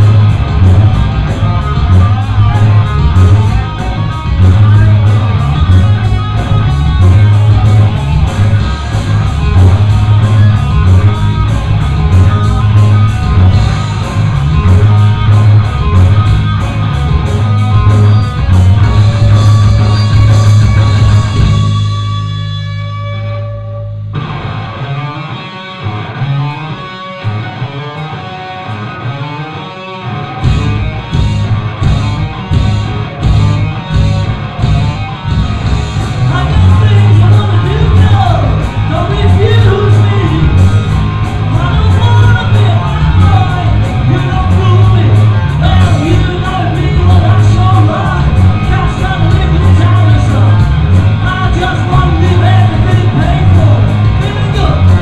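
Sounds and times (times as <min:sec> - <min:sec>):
cymbals and drums: 0:00.0 - 0:22.4
electric guitar: 0:00.0 - 0:55.0
live rock band playing: 0:00.0 - 0:55.0.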